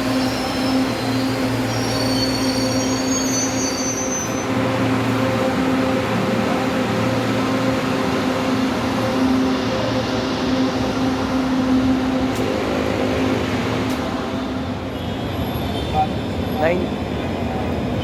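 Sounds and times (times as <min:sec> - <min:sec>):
train wheels squealing: 0:00.0 - 0:04.6
train electric hum: 0:00.0 - 0:18.0
noisy background: 0:04.4 - 0:18.0.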